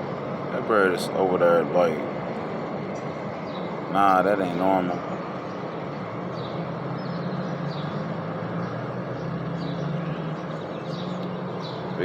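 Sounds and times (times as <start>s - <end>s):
outdoor background drone: 0.0s - 12.0s
high bird chirps: 4.9s - 12.0s.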